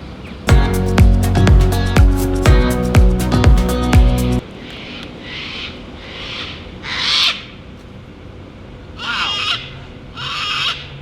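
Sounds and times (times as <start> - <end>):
parrot screeching: 9.0 - 10.9.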